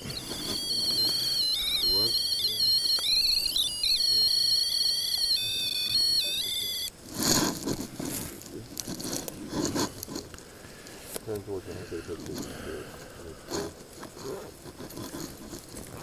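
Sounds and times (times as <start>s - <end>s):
high electronic whine: 0.0s - 7.0s.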